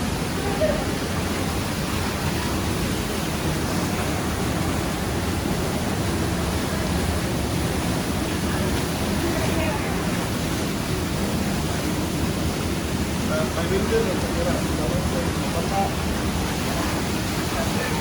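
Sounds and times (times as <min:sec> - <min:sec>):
waterfall rushing into pool: 0:00.0 - 0:18.0.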